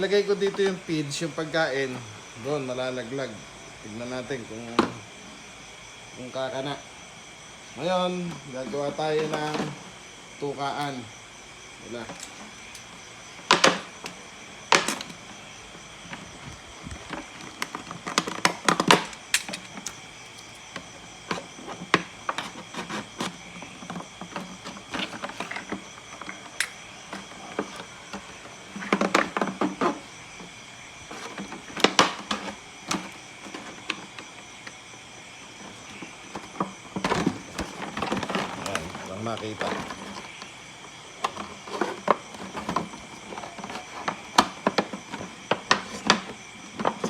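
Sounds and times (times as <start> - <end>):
plastic crinkling and scraping: 11.9 - 34.8, 35.5 - 47.0.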